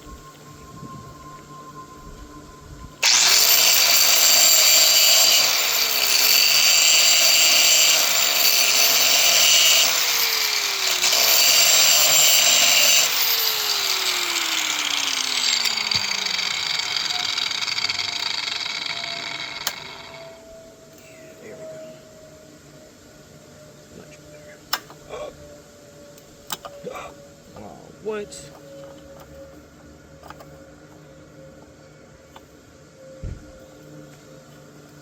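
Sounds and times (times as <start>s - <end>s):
electric power tool whining: 3.0s - 21.1s.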